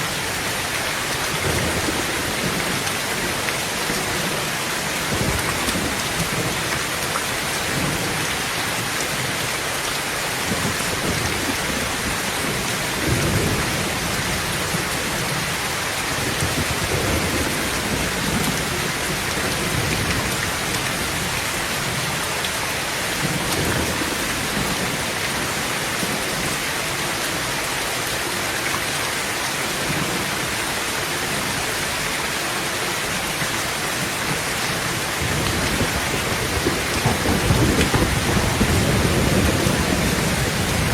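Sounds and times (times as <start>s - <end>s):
heavy rain on a tin roof: 0.0s - 40.9s
thunder rumbling: 34.4s - 40.9s.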